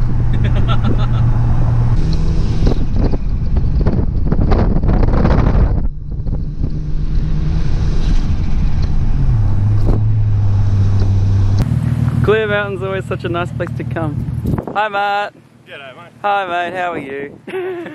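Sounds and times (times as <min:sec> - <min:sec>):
wind noise on microphone: 0:00.0 - 0:11.7, 0:14.2 - 0:15.4, 0:16.5 - 0:17.9
car engine revving: 0:00.0 - 0:14.6.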